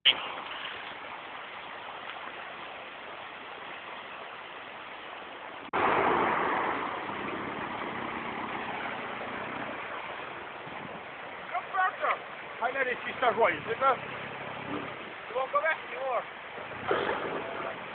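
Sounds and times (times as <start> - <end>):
loud rush: 5.7 - 10.0
engine running steadily: 5.8 - 17.9.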